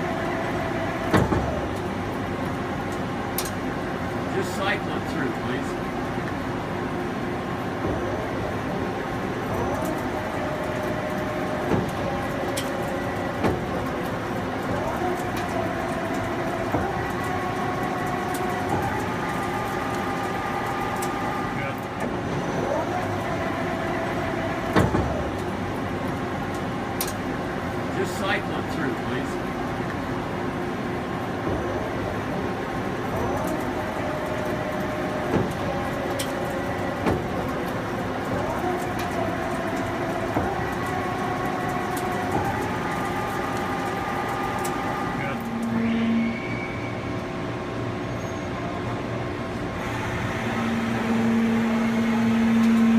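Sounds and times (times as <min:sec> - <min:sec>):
lathe mechanical whine: 0:00.0 - 0:52.9
lathe motor whine: 0:49.4 - 0:52.9.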